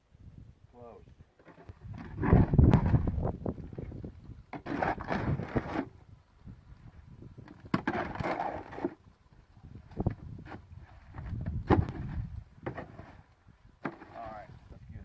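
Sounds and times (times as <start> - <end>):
shovel scraping wet concrete: 4.6 - 5.9, 7.8 - 9.0.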